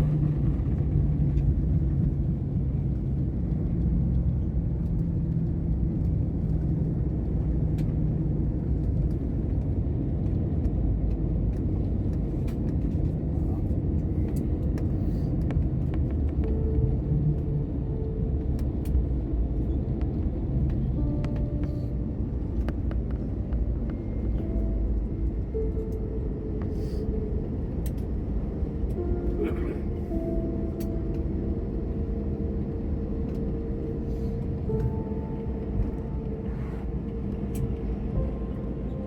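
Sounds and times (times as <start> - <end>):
airliner cabin rumble: 0.0 - 39.0
low steady hum: 0.0 - 39.0.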